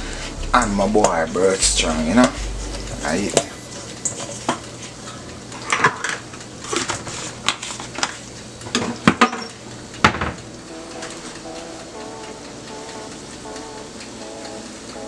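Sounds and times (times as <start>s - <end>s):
background music: 0.0s - 6.8s, 10.4s - 15.0s.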